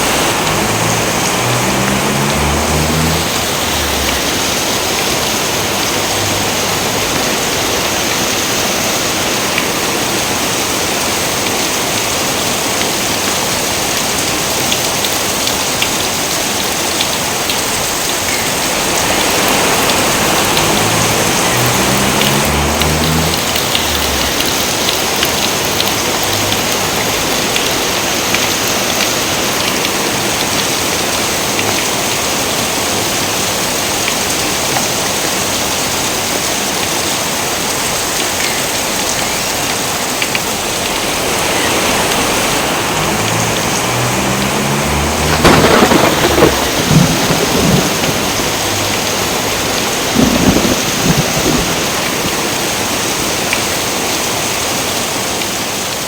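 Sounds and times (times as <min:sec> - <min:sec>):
thunder cracking and rumbling: 0:00.0 - 0:07.8, 0:18.8 - 0:27.4, 0:42.0 - 0:53.0
heavy rain: 0:00.0 - 0:56.0.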